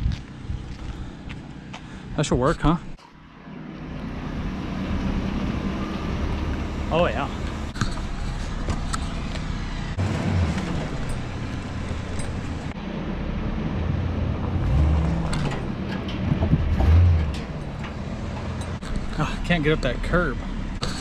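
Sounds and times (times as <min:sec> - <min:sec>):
truck engine surging: 0:00.4 - 0:21.0.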